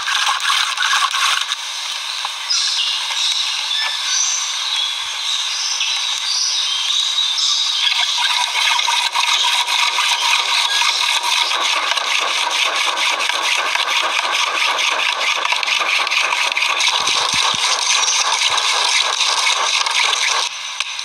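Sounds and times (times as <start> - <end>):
fast regular scraping strokes: 8.3 - 20.5.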